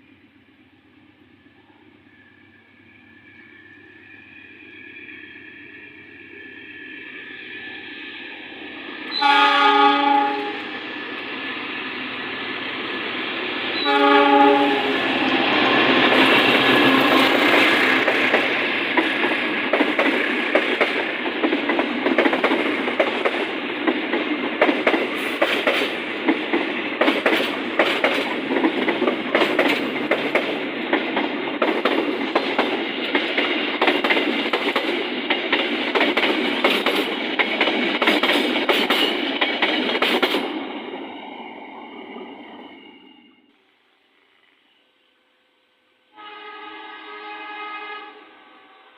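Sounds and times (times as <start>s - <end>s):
train rolling past: 0.0s - 44.8s
train wheels clacking over rail joints: 13.8s - 40.7s.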